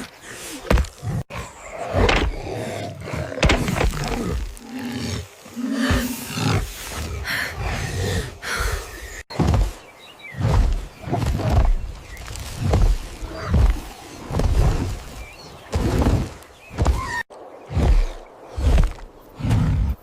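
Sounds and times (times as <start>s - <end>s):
animal roaring and growling: 1.0s - 8.4s.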